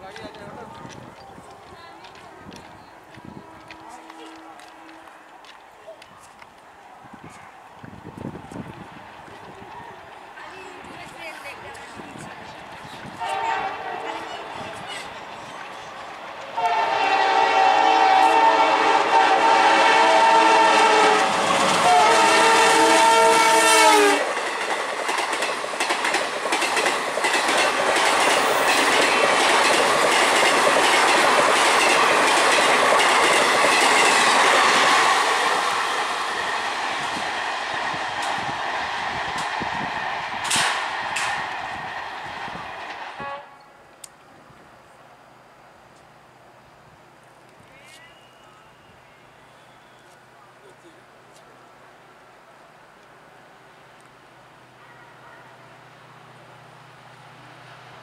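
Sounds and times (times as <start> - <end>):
train horn: 3.3 - 5.2, 13.2 - 14.5, 16.6 - 24.3, 43.2 - 43.7.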